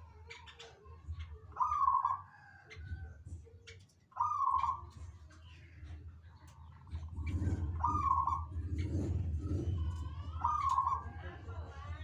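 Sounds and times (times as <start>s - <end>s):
birds chirping: 0.0s - 12.0s
drawn-out rising bird calls: 7.2s - 9.0s.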